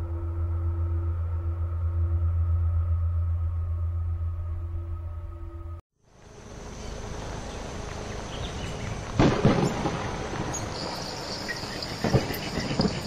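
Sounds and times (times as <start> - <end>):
noisy rushing ambience: 6.1 - 13.0.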